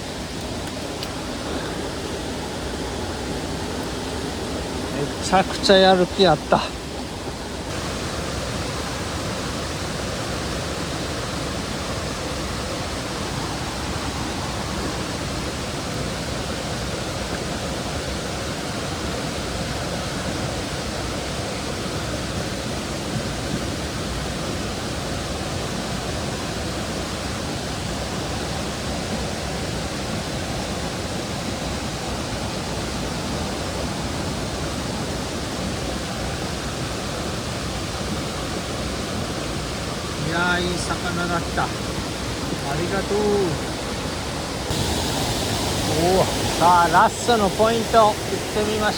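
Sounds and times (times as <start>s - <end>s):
stream water running over rocks: 0.0s - 48.9s.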